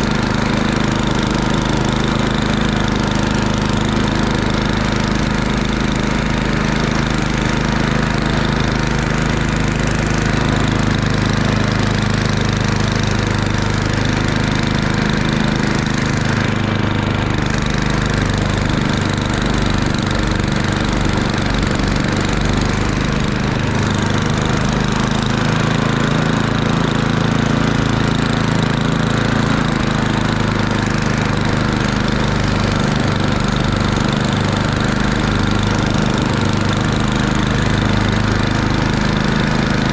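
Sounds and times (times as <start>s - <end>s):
snowblower engine running: 0.0s - 39.9s.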